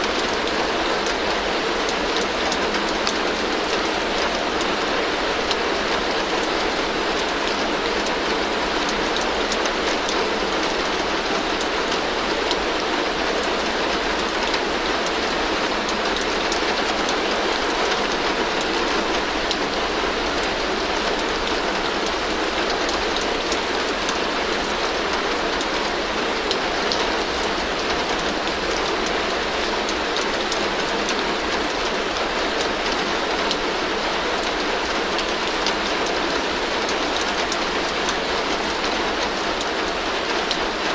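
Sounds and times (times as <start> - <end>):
heavy rain on a tin roof: 0.0 - 40.9.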